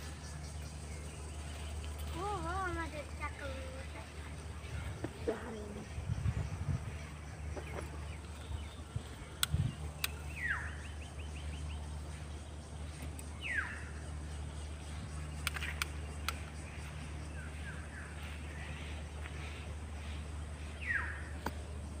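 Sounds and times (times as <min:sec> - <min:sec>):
birds calling: 0:00.0 - 0:22.0
steady low hum: 0:00.0 - 0:22.0
sharp clicks: 0:09.2 - 0:10.4, 0:12.9 - 0:13.4, 0:15.3 - 0:16.7.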